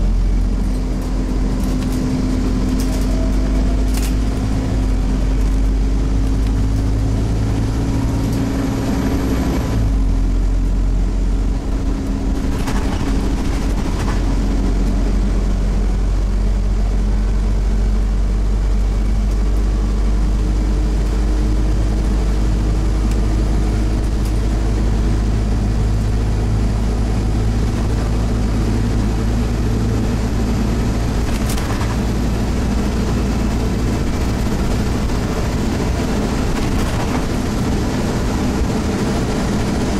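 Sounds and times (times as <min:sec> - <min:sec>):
bus diesel engine under load: 0:00.0 - 0:39.9.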